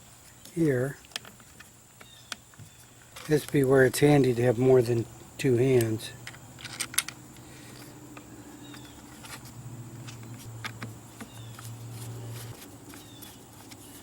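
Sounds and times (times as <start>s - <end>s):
plastic parts clicking: 5.8s - 9.4s.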